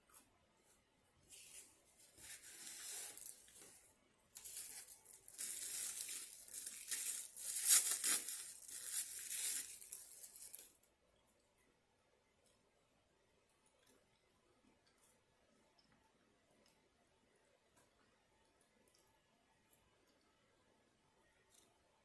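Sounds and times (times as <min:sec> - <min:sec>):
paper crinkling and crumpling: 0:01.3 - 0:10.8.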